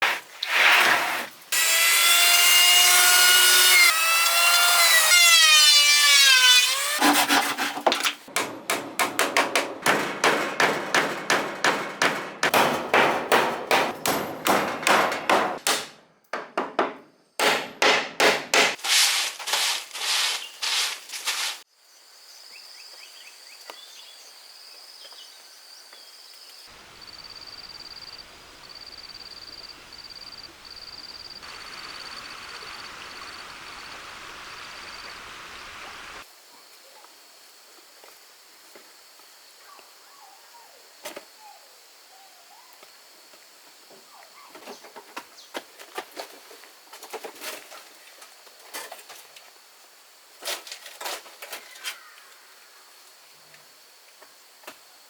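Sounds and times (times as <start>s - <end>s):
hand saw cutting wood: 0.4s - 8.2s
power saw cutting: 1.5s - 7.8s, 31.4s - 36.2s
high insect drone: 26.7s - 36.3s.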